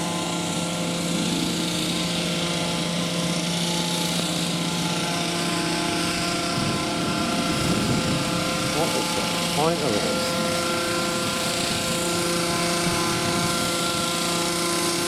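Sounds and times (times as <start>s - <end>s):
chainsaws cutting hedge: 0.0s - 15.0s.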